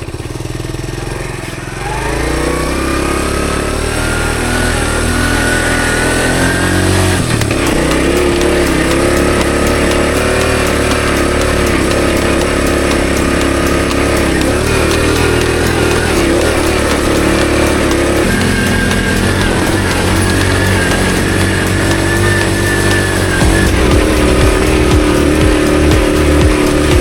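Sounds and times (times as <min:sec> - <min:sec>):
small motorcycle engine revving: 0:00.0 - 0:27.0.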